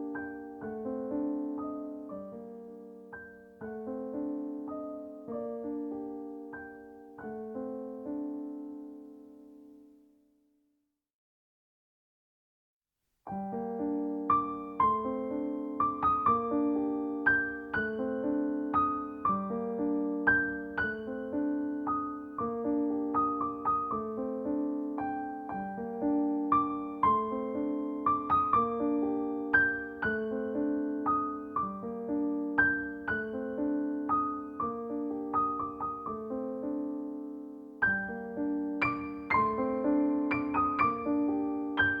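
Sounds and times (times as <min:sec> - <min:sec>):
gentle piano music: 0:00.0 - 0:10.2, 0:13.3 - 0:42.0.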